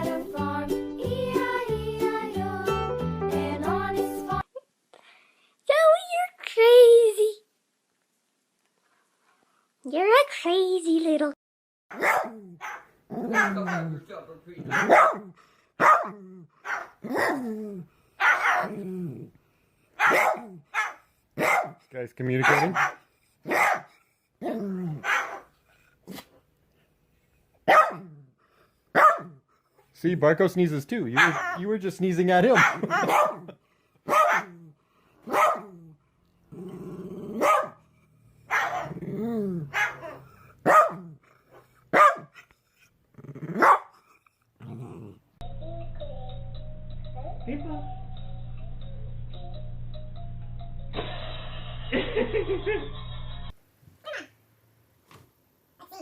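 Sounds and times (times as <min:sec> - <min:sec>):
dog barking vocalizations: 0:11.9 - 0:14.0, 0:14.6 - 0:17.5, 0:18.2 - 0:18.8, 0:20.0 - 0:26.3, 0:27.6 - 0:28.2, 0:28.9 - 0:29.4, 0:31.2 - 0:31.7, 0:32.5 - 0:36.0, 0:37.3 - 0:42.4, 0:43.5 - 0:44.2
dog growling: 0:12.2 - 0:18.0, 0:18.6 - 0:19.4, 0:24.4 - 0:25.2, 0:35.4 - 0:41.9, 0:42.7 - 0:45.4.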